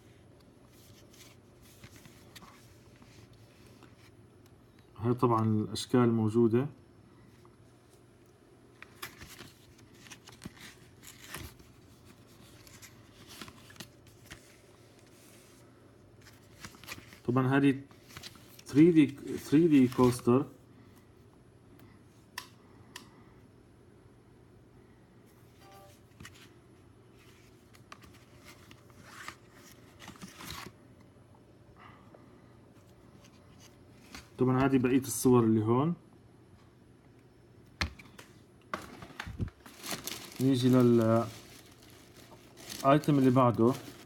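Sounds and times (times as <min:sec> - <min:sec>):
packaging rustling: 0:08.8 - 0:15.6, 0:37.8 - 0:44.0.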